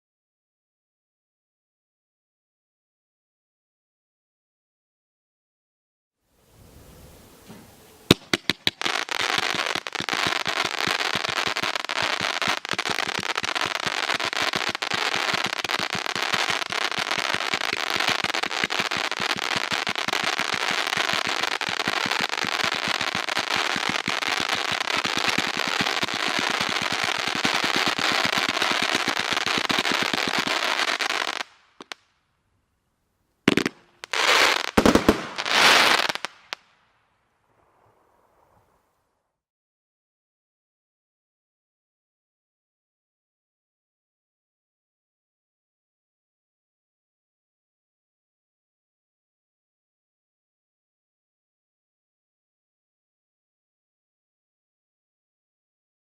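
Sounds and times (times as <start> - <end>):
firework bursts: 6.6 - 32.0, 33.5 - 36.8
firework cake crackling pops: 7.5 - 32.1, 33.5 - 36.8.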